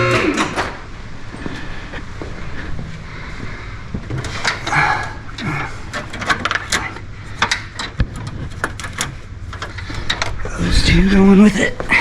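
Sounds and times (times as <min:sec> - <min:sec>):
low steady hum: 0:00.0 - 0:12.0
metallic clicks and knocks: 0:05.9 - 0:10.4.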